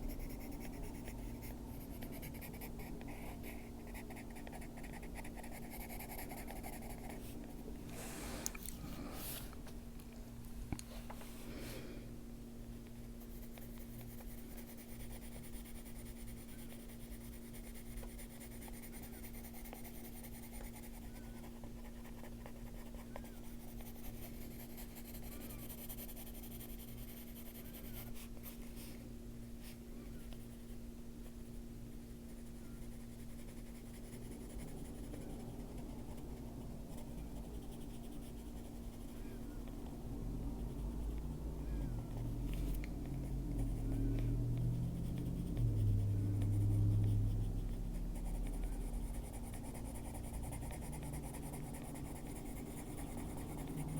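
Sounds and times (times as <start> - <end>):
pencil scratching on paper: 0.0 - 7.4, 36.9 - 39.2, 44.8 - 53.9
steady low hum: 0.0 - 53.9.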